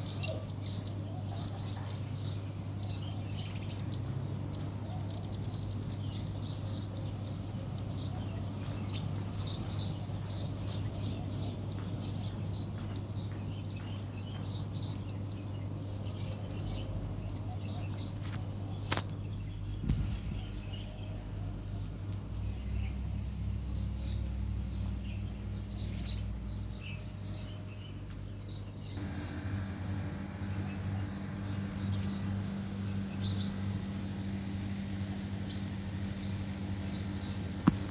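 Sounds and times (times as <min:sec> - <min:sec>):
small birds chirping: 0:00.0 - 0:37.9
low hum: 0:19.2 - 0:37.9.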